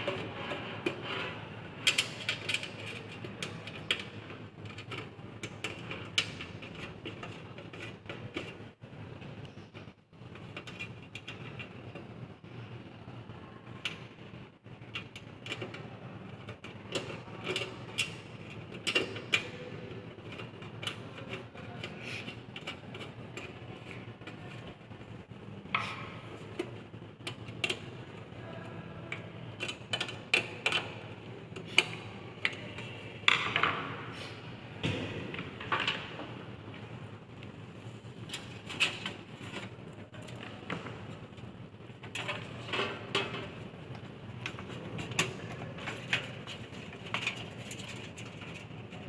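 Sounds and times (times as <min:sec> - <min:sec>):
computer hardware clicks and scrapes: 0:00.0 - 0:12.7, 0:13.8 - 0:25.0, 0:25.7 - 0:33.5, 0:42.0 - 0:49.0.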